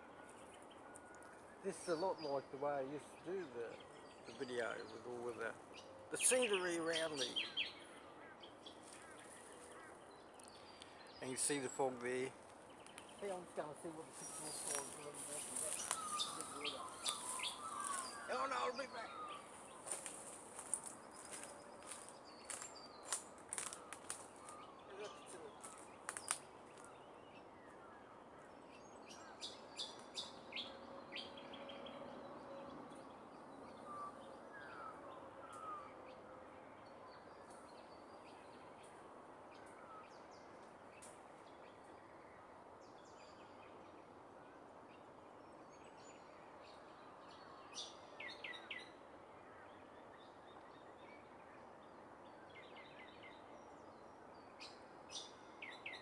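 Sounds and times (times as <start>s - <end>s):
birds chirping: 0.0s - 44.0s
faint outdoor background hiss: 0.0s - 56.0s.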